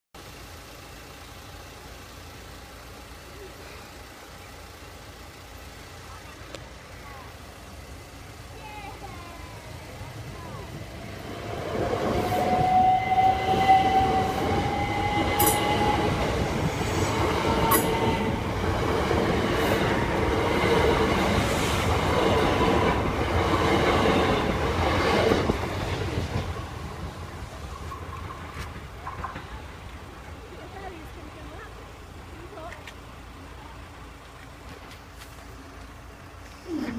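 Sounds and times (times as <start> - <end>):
train wheels rumbling and clacking: 4.0 - 36.6
train whine rising in pitch: 9.5 - 29.4.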